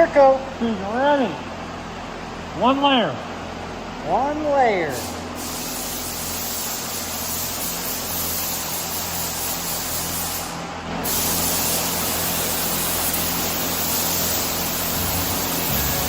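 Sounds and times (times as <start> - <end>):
spray gun hissing: 4.9 - 16.0
steady low hum: 12.4 - 16.0.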